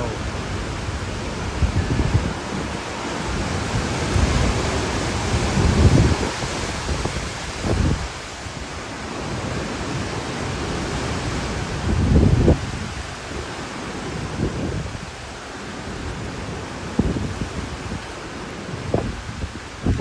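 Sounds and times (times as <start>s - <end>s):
strong wind rushing: 0.0s - 15.3s, 15.9s - 18.0s, 18.6s - 20.0s
wind buffeting microphone: 0.0s - 20.0s.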